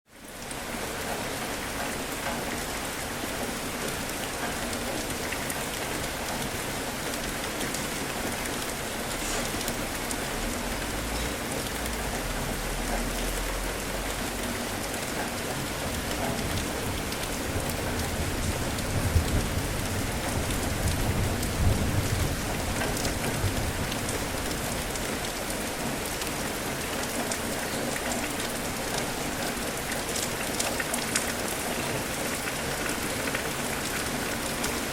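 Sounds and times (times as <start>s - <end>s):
heavy rain falling: 0.1s - 34.9s
low thunder rumbles: 15.8s - 25.3s.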